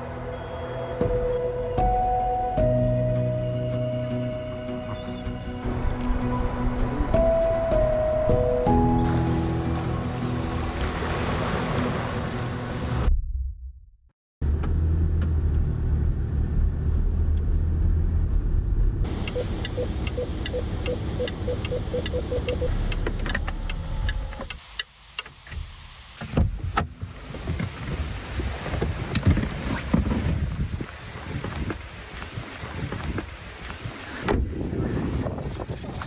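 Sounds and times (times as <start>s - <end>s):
car engine rumbling: 0.0s - 24.8s
wind noise: 26.4s - 36.0s.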